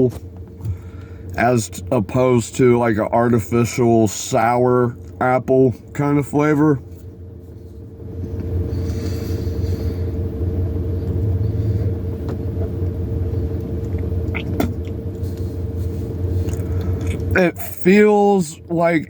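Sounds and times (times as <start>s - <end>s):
constant hum: 0.0s - 19.0s
engine rumble: 0.0s - 19.0s.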